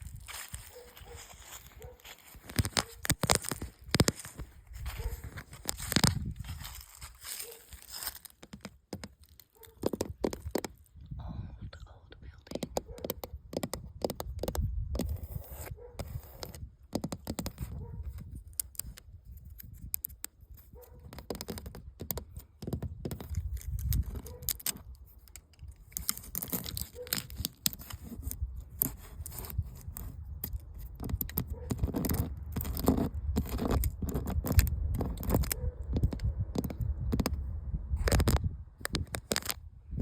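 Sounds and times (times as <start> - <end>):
paint scraping and peeling: 0.0 - 11.0, 12.5 - 37.4
low rumble: 11.0 - 12.4.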